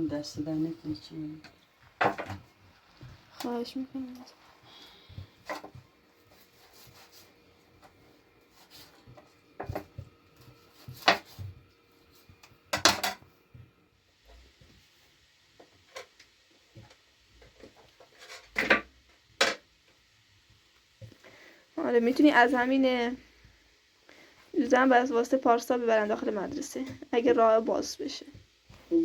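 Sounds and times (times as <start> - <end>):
hard objects knocking and clattering: 1.8 - 3.3, 12.7 - 13.3, 17.5 - 19.7.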